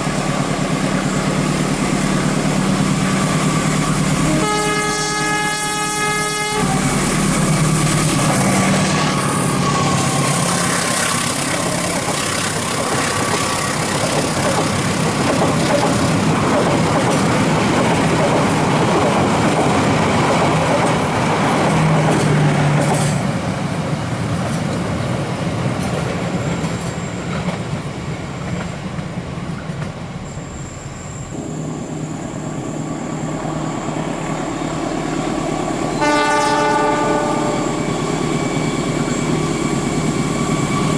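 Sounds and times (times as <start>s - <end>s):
train wheels rushing on rails: 0.0s - 40.9s.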